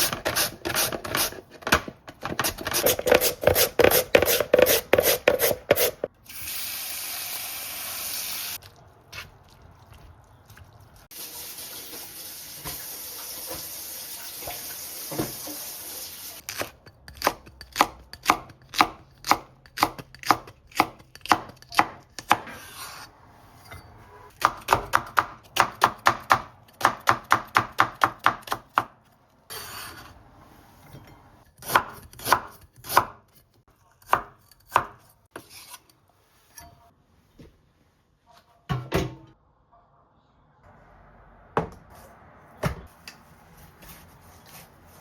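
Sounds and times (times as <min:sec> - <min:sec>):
knife chopping on cutting board: 0:00.0 - 0:06.1.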